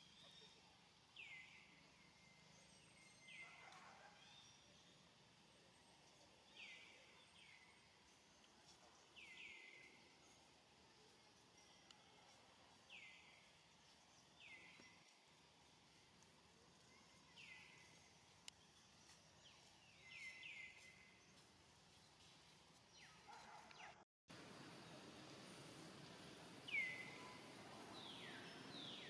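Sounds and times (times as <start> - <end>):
faint outdoor ambience: 0.0 - 29.0
bird chirping: 16.8 - 24.0, 26.6 - 29.0.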